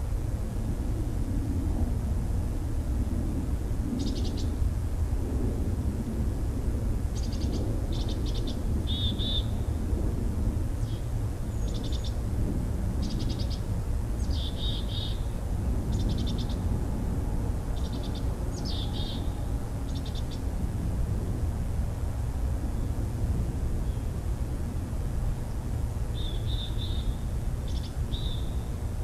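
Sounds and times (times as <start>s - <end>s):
steady low rumble: 0.0s - 29.0s
small bird trilled calls: 7.2s - 9.5s, 14.2s - 15.2s, 17.8s - 20.4s.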